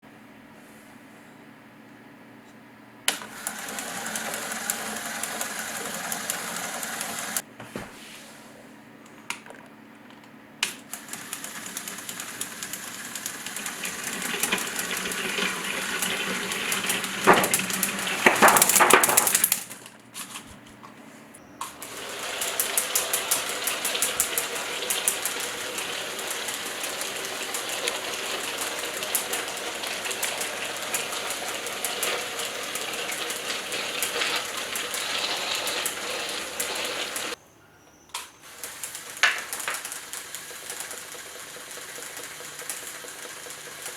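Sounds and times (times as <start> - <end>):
toy motor whirring and clicking: 3.2 - 7.4, 10.9 - 19.7, 21.8 - 37.4, 38.5 - 43.9
heavy plastic clatter: 12.0 - 19.7.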